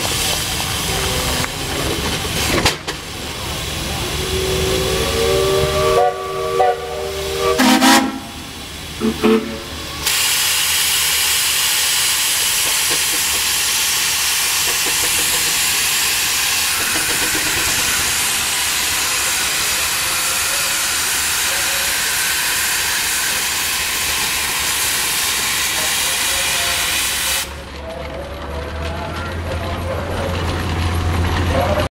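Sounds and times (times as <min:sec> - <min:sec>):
steam hissing: 0:00.0 - 0:27.6
steam whistle tooting: 0:04.0 - 0:09.8.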